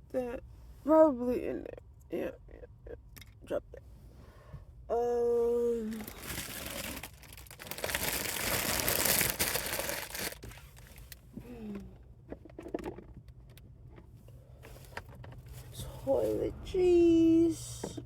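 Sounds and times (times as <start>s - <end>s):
bag rustling and crinkling: 5.9s - 11.2s.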